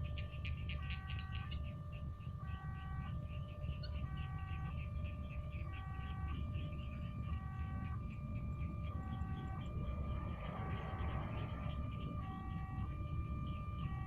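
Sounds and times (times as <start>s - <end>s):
level crossing two-tone warning signal: 0.0s - 14.0s
low rumble: 8.7s - 14.0s.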